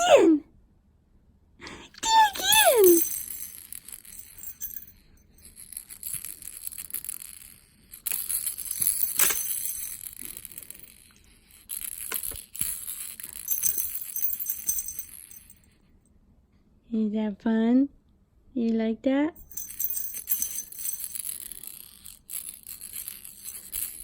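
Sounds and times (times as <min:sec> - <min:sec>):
baby rattle jingling: 0:02.0 - 0:15.6, 0:19.4 - 0:24.0.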